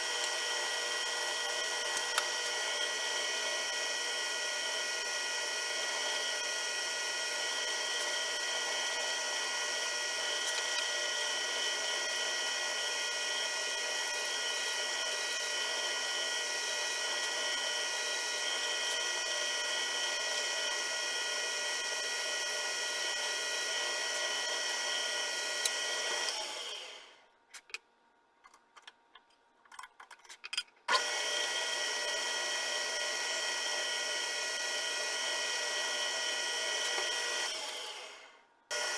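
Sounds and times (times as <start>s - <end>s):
machine tool motor whining: 30.9s - 38.9s.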